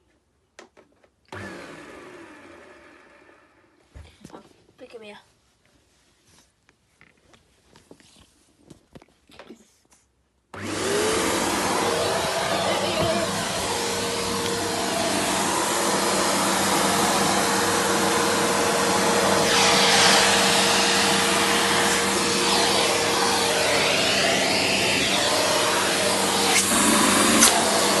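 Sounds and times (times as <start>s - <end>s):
upright vacuum cleaner running: 1.3s - 3.6s, 10.6s - 28.0s.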